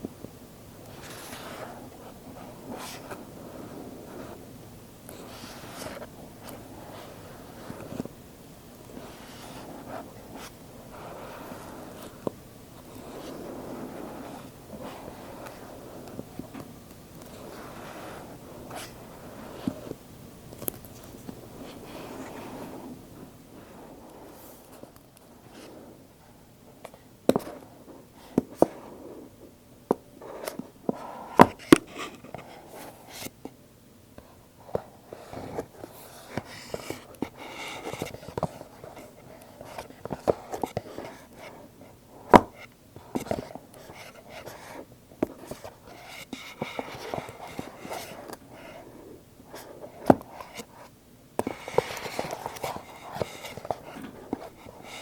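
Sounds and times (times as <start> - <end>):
cardboard rustling and scratching: 5.1 - 8.2, 8.9 - 20.0, 34.3 - 55.0.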